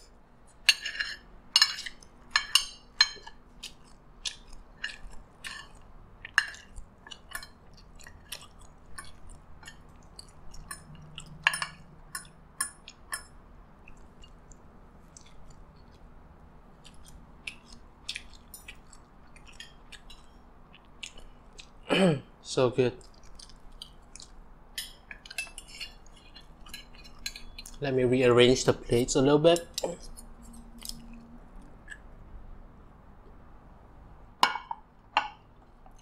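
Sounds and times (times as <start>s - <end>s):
chewing with wet mouth clicks: 3.2s - 21.8s, 23.0s - 27.8s, 29.7s - 32.2s.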